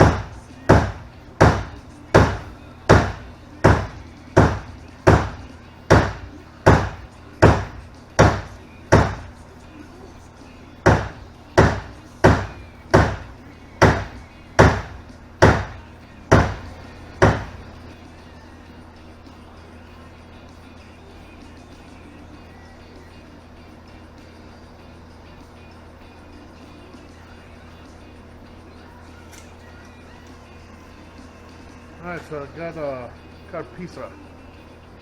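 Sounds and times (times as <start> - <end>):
hammer striking plastic pipe: 0.0 - 9.3, 10.9 - 17.6.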